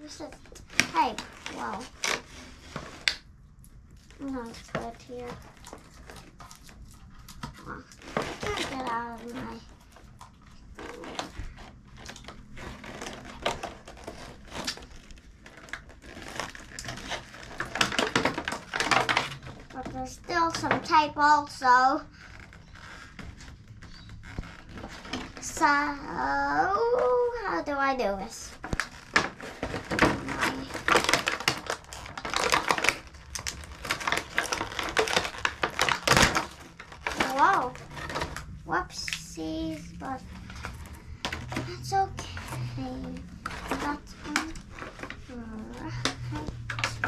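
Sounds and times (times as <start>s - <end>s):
plastic packaging crinkling: 0.0s - 20.8s, 22.0s - 26.2s, 28.1s - 47.0s.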